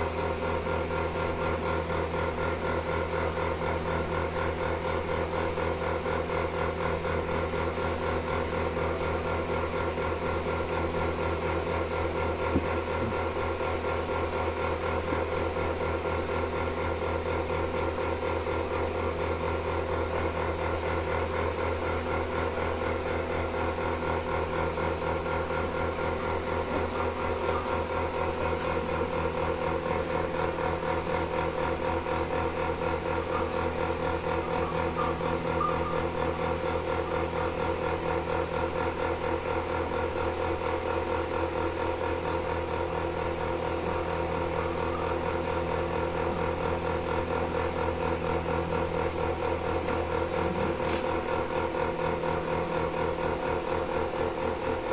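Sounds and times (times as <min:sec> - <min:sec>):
milking machine humming and pulsing: 0:00.0 - 0:54.9.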